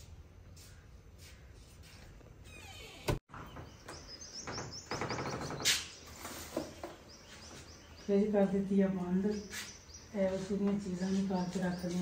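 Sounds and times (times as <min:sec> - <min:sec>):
small birds chirping: 0:03.3 - 0:12.0.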